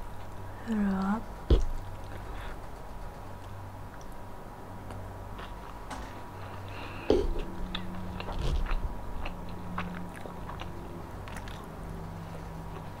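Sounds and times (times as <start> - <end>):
chewing and crunching: 4.8 - 13.0.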